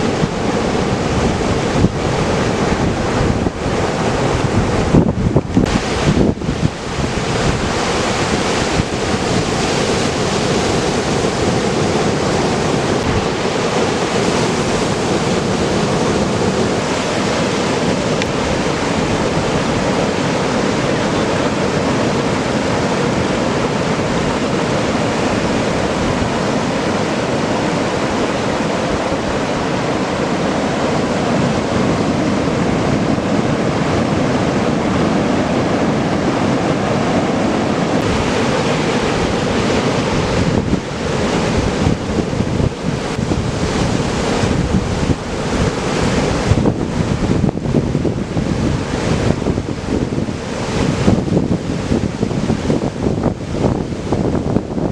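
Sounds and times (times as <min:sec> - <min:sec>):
ocean surf breaking: 0:00.0 - 0:54.9
wind on microphone: 0:00.0 - 0:54.9.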